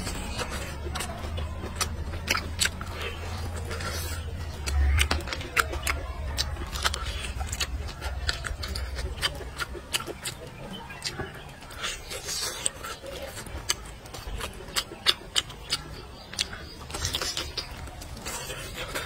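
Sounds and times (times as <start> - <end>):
chewing and wet lip smacks: 0.0 - 19.0.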